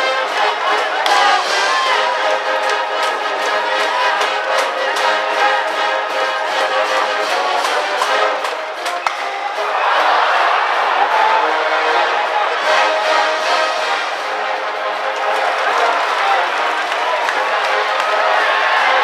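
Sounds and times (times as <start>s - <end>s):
brass band playing: 0.0s - 19.0s.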